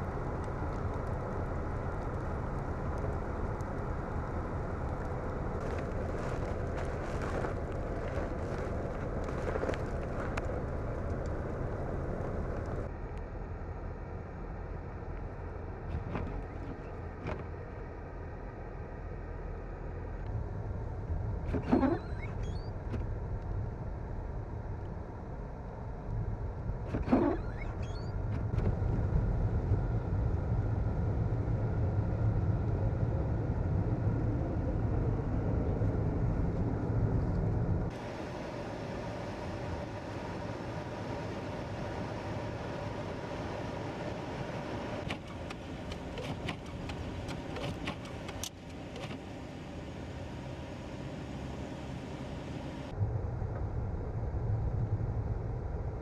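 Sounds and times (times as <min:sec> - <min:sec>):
vehicle engine rumble: 0:00.0 - 0:56.0
sharp clicks and knocks: 0:45.0 - 0:49.2.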